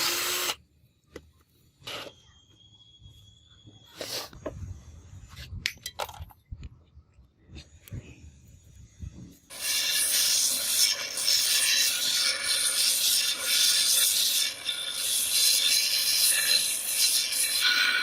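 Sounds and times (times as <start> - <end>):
sanding steel blade: 9.5 - 18.0.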